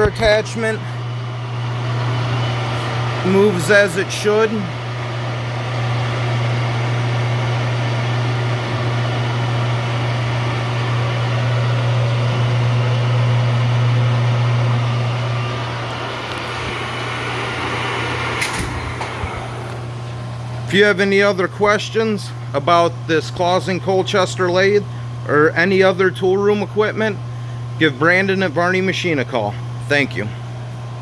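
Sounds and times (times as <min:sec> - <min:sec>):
lathe gear-train hum: 0:00.0 - 0:29.8.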